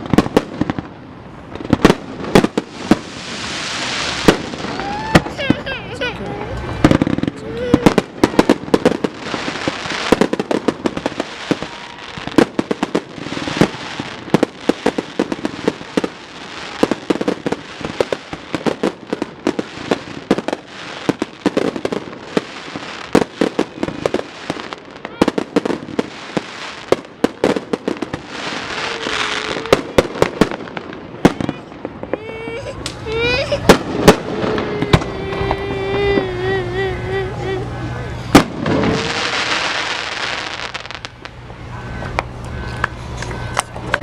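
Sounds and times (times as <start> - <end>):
fireworks popping and crackling: 0.0 - 36.4, 38.2 - 44.0
steady hiss: 2.0 - 5.1.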